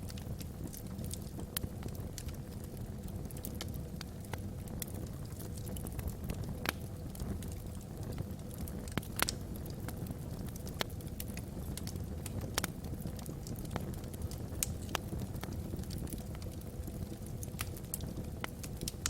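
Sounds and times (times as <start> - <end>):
low rumble of flames: 0.0 - 19.0
wood fire crackling and popping: 0.0 - 19.0.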